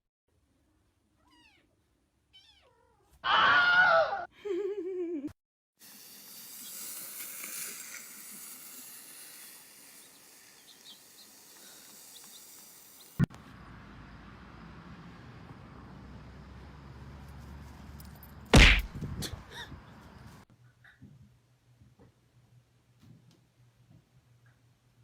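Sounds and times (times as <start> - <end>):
cat meowing: 1.2 - 3.7.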